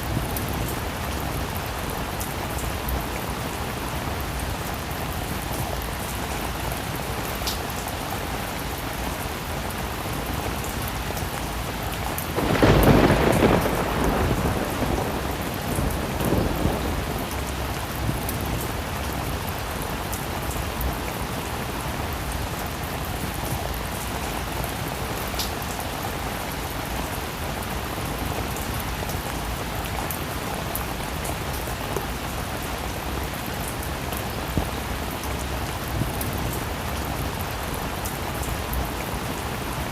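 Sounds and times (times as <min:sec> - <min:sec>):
heavy rain: 0:00.0 - 0:39.9
thunder rumbling: 0:12.3 - 0:19.2.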